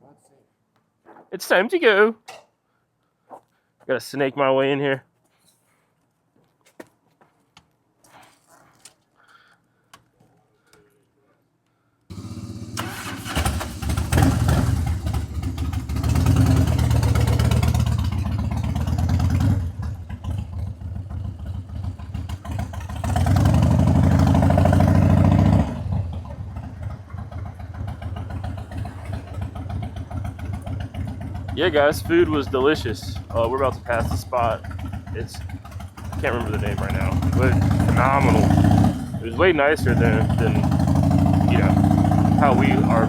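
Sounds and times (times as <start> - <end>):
motorcycle engine revving: 12.1 - 43.0.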